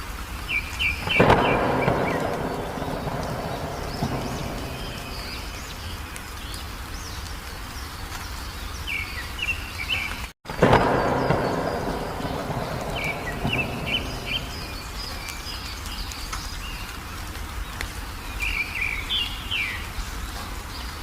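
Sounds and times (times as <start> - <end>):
outdoor background noise: 0.0 - 21.0
birds chirping: 0.4 - 21.0
rushing noise: 1.1 - 6.1, 10.5 - 15.3.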